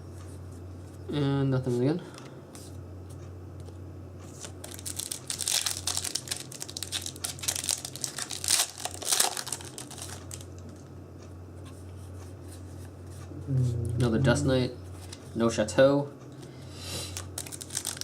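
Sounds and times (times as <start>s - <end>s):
foil wrapper tearing and crinkling: 4.4s - 10.6s, 17.1s - 18.0s.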